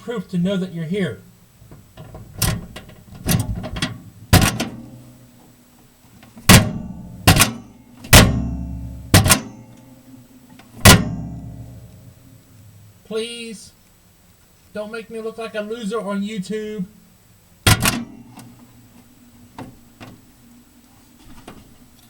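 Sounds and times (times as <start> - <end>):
microwave door slamming shut: 2.0 - 5.0, 6.4 - 9.6, 10.6 - 11.9, 17.7 - 18.2.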